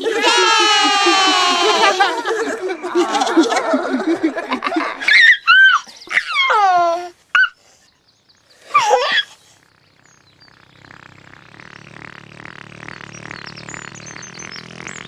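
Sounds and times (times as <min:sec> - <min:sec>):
cartoon characters giggling: 0:00.0 - 0:07.6, 0:08.7 - 0:09.4
high-pitched squeaky calls: 0:05.0 - 0:07.9, 0:08.5 - 0:09.6.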